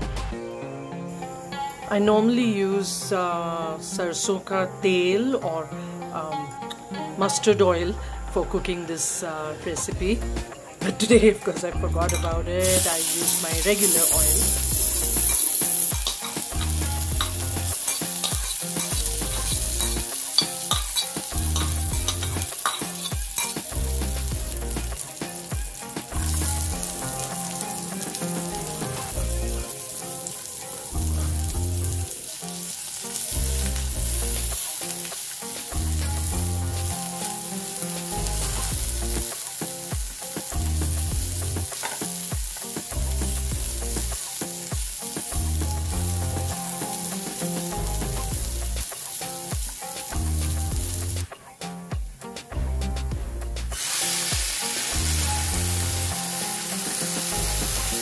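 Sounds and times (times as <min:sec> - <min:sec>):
garlic sizzling in hot oil: 0:10.2 - 0:51.3, 0:53.6 - 0:58.0
spatula scraping a pan: 0:12.7 - 0:29.1.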